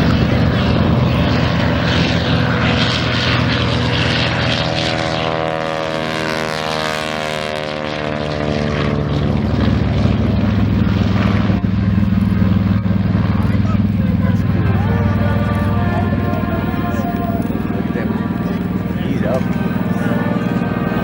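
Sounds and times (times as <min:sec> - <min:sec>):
propeller aircraft flying past: 0:00.0 - 0:21.0.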